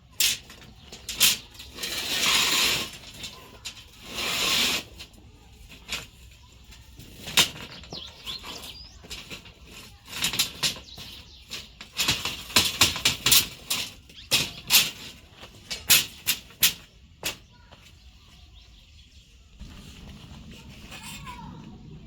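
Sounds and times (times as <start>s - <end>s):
metal tools clanking: 4.9s - 17.4s.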